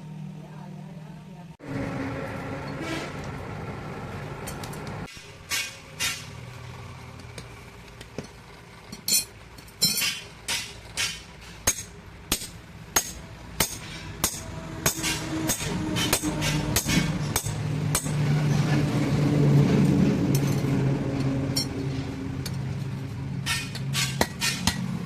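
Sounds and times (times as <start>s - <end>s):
hammer striking metal: 9.1s - 18.4s, 23.4s - 25.0s.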